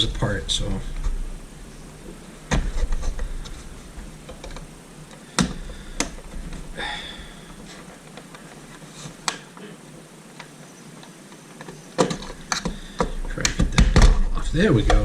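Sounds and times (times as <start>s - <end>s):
plastic casing clicks and knocks: 11.6s - 14.2s.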